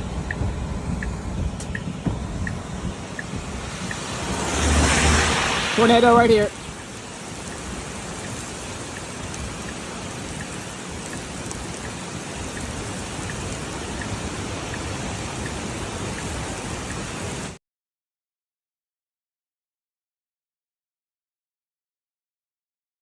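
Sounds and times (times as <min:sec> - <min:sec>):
steady rain hiss: 0:00.0 - 0:17.6.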